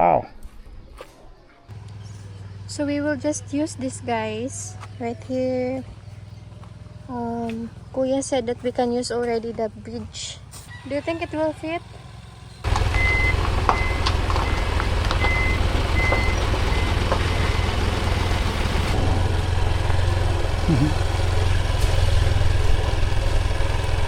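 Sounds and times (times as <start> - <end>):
motorcycle engine running: 1.7 - 24.0
high beeps: 13.0 - 14.6, 15.2 - 18.2.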